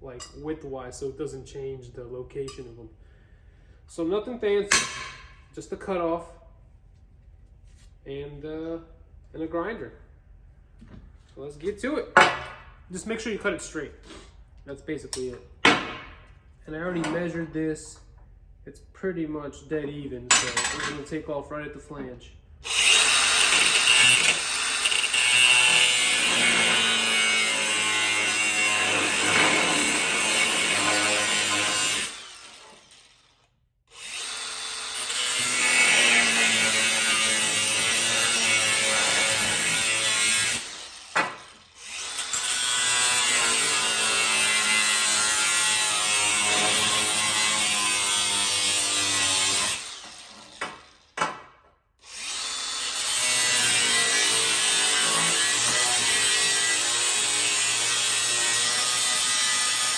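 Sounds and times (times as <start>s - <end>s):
grinder cutting metal: 22.6s - 51.2s, 52.0s - 59.9s.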